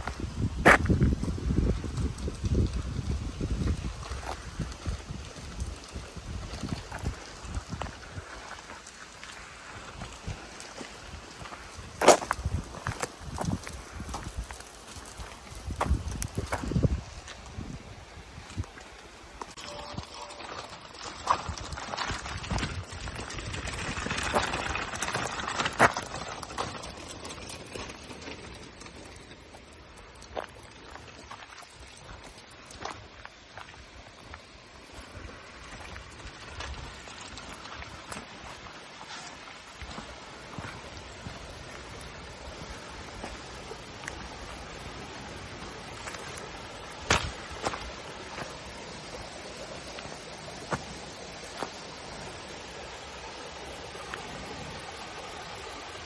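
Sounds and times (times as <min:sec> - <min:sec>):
footsteps on path: 0:00.0 - 0:22.2, 0:29.1 - 0:44.9, 0:45.8 - 0:52.3
wind noise on microphone: 0:00.0 - 0:29.3, 0:31.0 - 0:56.0.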